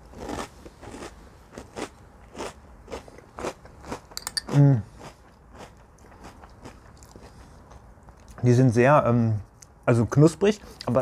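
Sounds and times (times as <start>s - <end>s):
cereal crunching while chewing: 0.0s - 7.8s.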